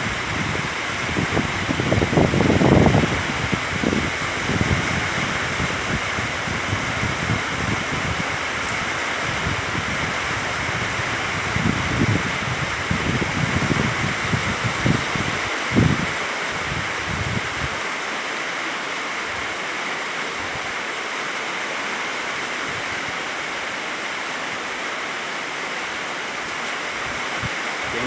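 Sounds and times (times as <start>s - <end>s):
wind buffeting microphone: 0.0s - 17.8s
heavy storm rain: 0.0s - 28.0s
running rainwater: 0.0s - 28.0s.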